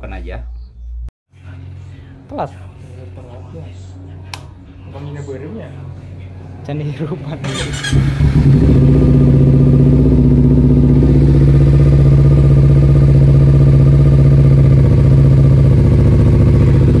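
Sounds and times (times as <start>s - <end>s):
motorcycle engine idling: 7.4s - 17.0s.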